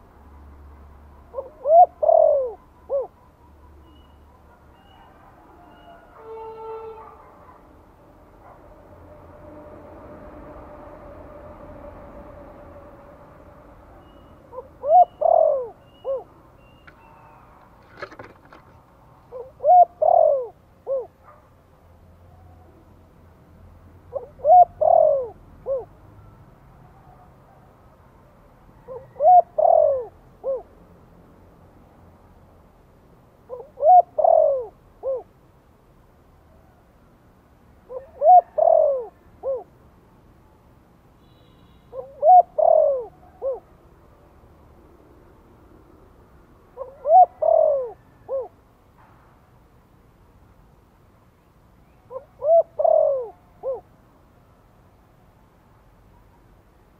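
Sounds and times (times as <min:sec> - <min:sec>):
dove cooing: 0:01.3 - 0:03.2, 0:14.0 - 0:16.4, 0:19.3 - 0:21.2, 0:24.1 - 0:26.0, 0:28.8 - 0:30.7, 0:33.5 - 0:35.3, 0:37.9 - 0:39.7, 0:41.9 - 0:43.7, 0:46.7 - 0:48.6, 0:52.1 - 0:53.9.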